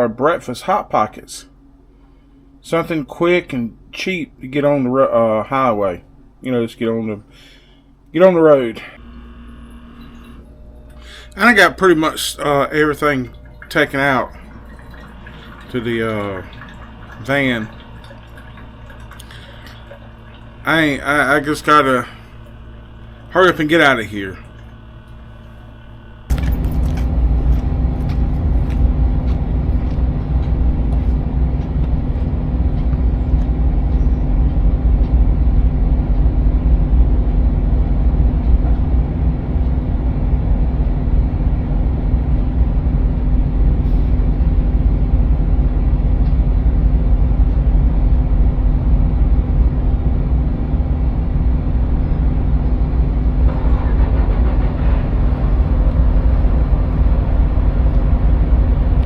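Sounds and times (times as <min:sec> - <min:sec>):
constant low hum: 0:00.0 - 0:59.0
van engine and road rumble: 0:26.3 - 0:59.0.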